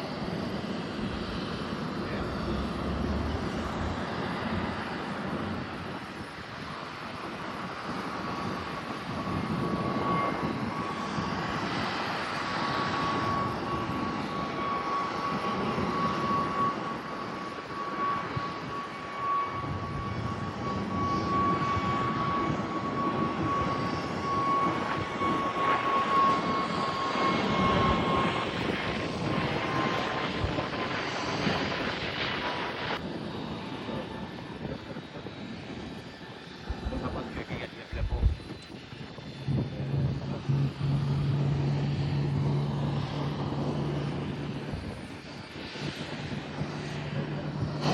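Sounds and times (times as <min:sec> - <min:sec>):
airliner engines passing: 0:00.0 - 0:47.9.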